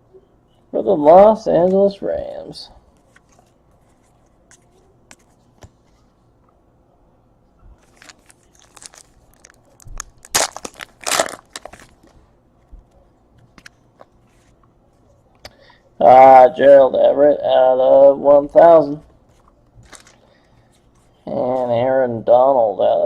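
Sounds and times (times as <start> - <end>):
cards and plastic crinkling: 7.8 - 12.2, 19.4 - 20.3.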